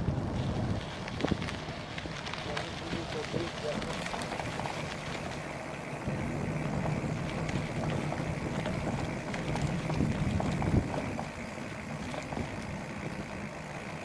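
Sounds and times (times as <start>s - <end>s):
wind rushing over microphone: 0.0s - 5.4s, 6.0s - 13.5s
bike clicks and rattles: 0.0s - 14.0s
low rumble: 6.0s - 13.4s.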